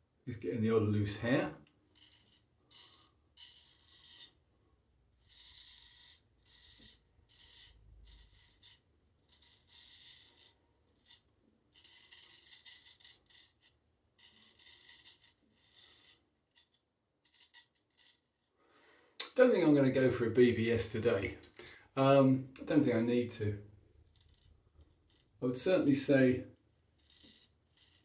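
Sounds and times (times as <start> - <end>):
straight razor scraping stubble: 1.9 - 4.4, 5.2 - 18.5, 24.0 - 28.0.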